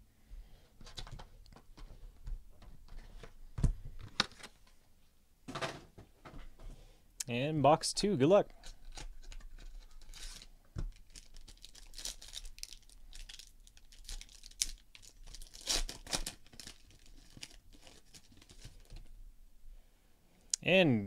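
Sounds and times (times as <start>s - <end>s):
plastic wrapping tearing and crinkling: 8.7s - 19.0s.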